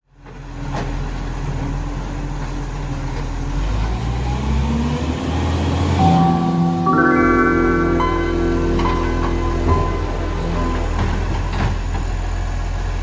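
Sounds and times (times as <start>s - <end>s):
heavy truck engine running: 7.6s - 13.0s.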